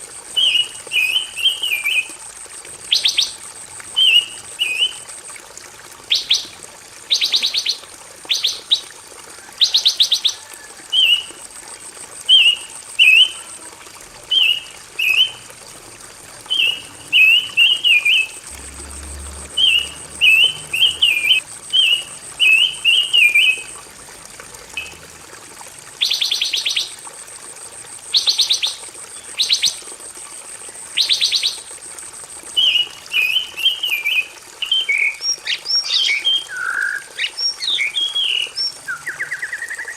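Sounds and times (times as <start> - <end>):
songbird singing: 0.4 - 2.1, 14.3 - 15.4, 16.4 - 23.7, 24.8 - 25.0, 32.6 - 39.9.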